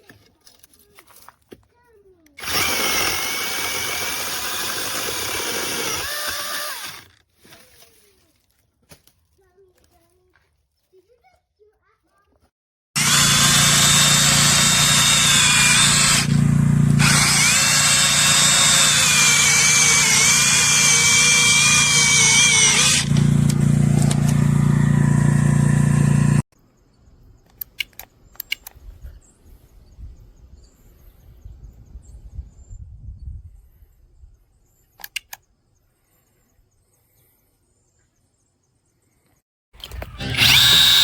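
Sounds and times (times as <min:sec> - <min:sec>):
mini chainsaw cutting wood: 0:02.4 - 0:07.2, 0:13.0 - 0:26.4, 0:39.8 - 0:41.0.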